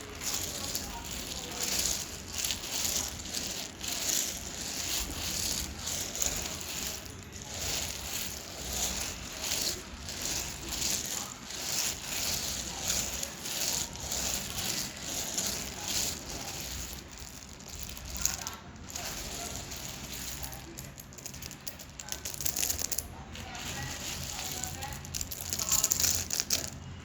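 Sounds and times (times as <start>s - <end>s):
dry clay crunching: 0.0s - 26.8s.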